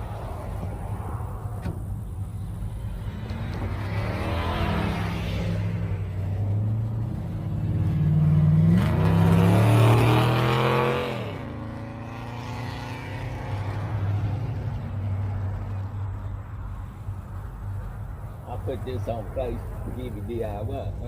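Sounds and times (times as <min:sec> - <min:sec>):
car engine accelerating past: 0:02.7 - 0:15.4.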